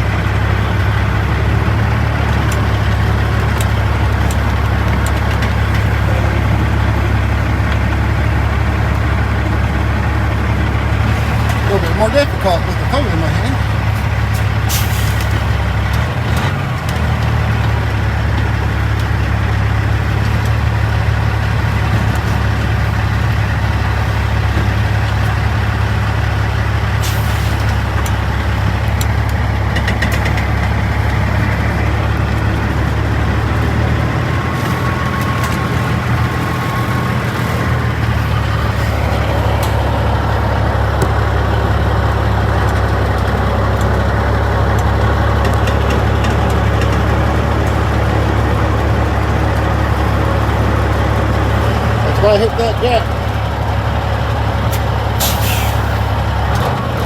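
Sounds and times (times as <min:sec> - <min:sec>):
diesel truck engine idling: 0:00.0 - 0:57.0
short air hiss: 0:55.2 - 0:56.0.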